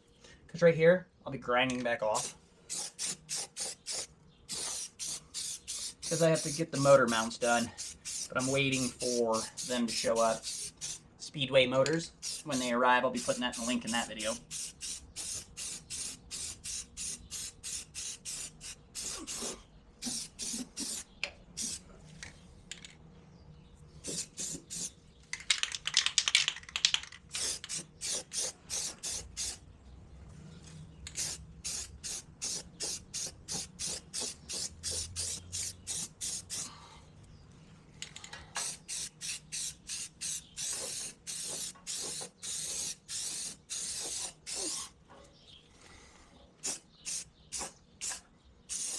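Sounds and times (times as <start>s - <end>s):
spray paint can hissing: 2.2s - 11.0s, 12.2s - 21.8s, 24.0s - 24.9s, 27.3s - 29.6s, 31.1s - 36.7s, 38.6s - 44.9s, 46.6s - 48.9s.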